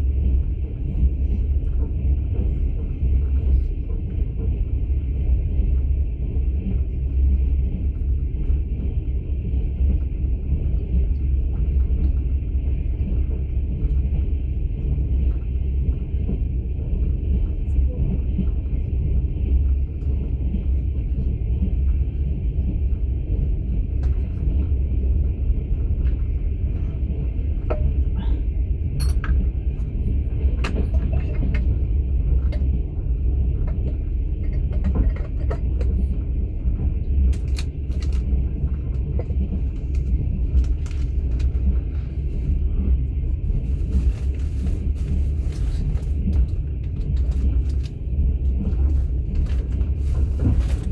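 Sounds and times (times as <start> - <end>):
train rumble: 0.0 - 50.9.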